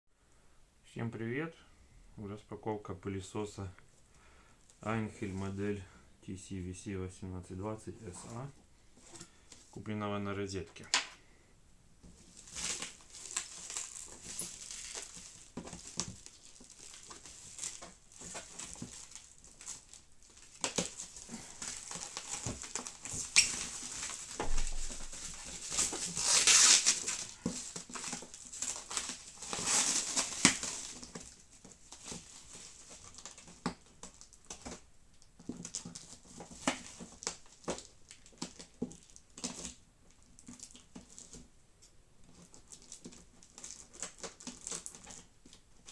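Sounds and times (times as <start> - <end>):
packaging rustling: 12.0 - 41.5, 42.2 - 45.9.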